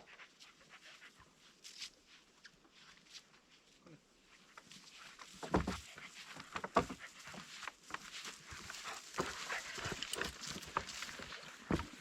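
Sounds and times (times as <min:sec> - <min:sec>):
dog panting: 0:08.5 - 0:11.2.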